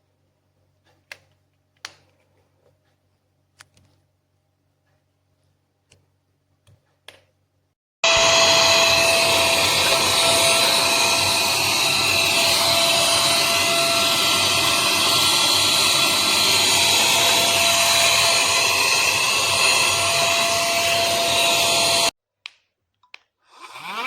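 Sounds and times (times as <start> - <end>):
vacuum blower motor whining: 8.0 - 22.1.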